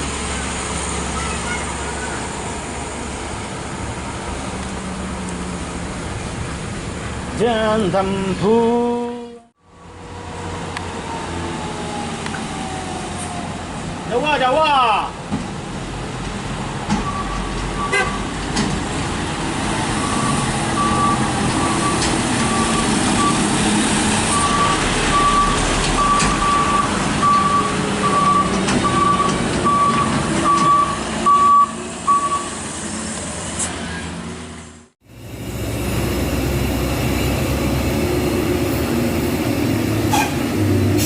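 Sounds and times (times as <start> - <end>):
truck reversing alarm beeping: 17.0 - 18.3, 19.9 - 32.6
truck engine running: 34.7 - 41.0.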